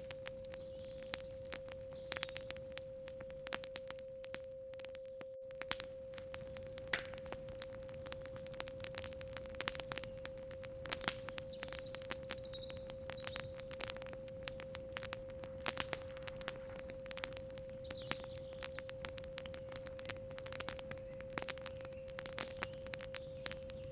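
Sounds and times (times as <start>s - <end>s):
campfire crackling and popping: 0.0s - 23.9s
faint bird chirps: 0.4s - 2.7s, 10.0s - 13.8s, 17.6s - 23.9s
steady sine tone: 2.8s - 9.5s.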